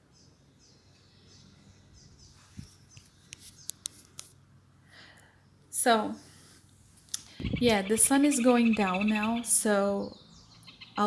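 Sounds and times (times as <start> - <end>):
distant bird chirps: 0.0 - 3.9, 7.2 - 11.0.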